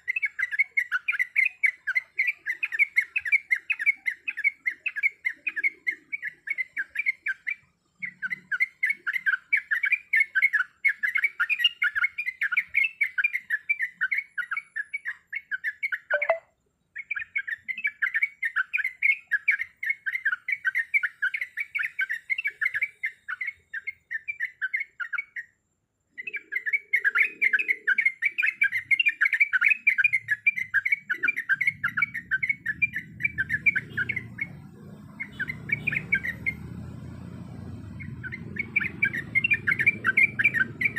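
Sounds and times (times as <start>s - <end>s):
bulbul chattering song: 0.0s - 40.9s.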